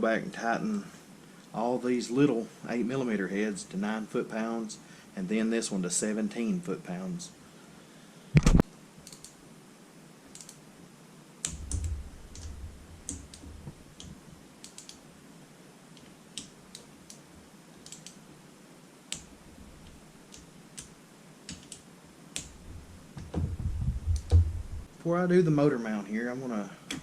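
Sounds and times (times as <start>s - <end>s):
low handling bumps: 11.5s - 13.8s, 22.5s - 24.9s.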